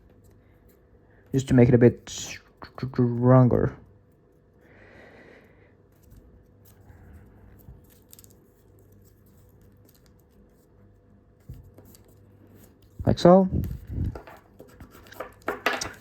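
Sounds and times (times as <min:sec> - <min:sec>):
faint steady hum: 0:00.0 - 0:16.0
paper rustling and creasing: 0:05.9 - 0:16.0.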